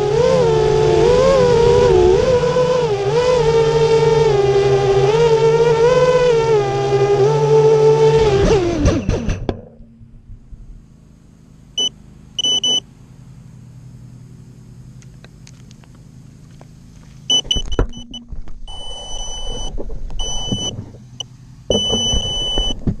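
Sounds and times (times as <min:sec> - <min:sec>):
drone motors whining: 0:00.0 - 0:13.0, 0:14.2 - 0:23.0
low steady hum: 0:00.0 - 0:23.0
high buzzer beeps: 0:11.8 - 0:12.8, 0:17.3 - 0:20.8, 0:21.7 - 0:22.8.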